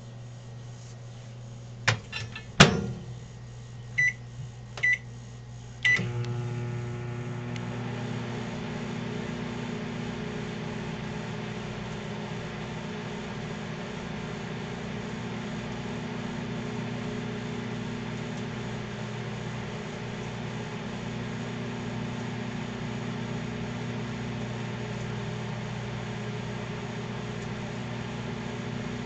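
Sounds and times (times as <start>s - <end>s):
microwave oven humming: 0.0s - 29.0s
microwave door shutting: 1.9s - 3.2s
keypad beeps: 4.0s - 4.2s, 4.8s - 5.0s.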